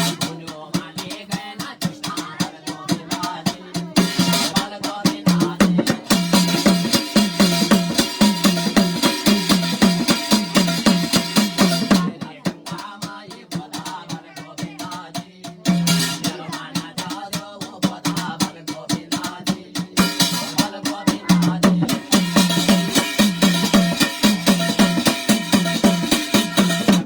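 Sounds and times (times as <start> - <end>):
quick drum strokes: 0.0 - 27.0.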